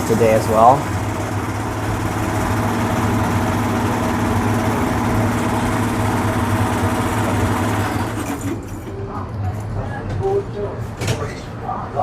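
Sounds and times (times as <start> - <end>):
vehicle engine idling: 0.0 - 8.3.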